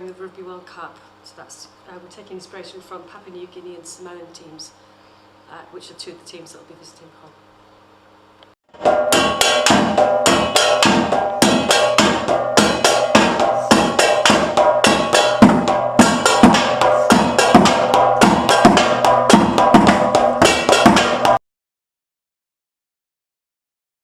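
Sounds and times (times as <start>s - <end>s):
fast drum and block hits: 8.7s - 21.4s
held tone: 8.8s - 21.4s.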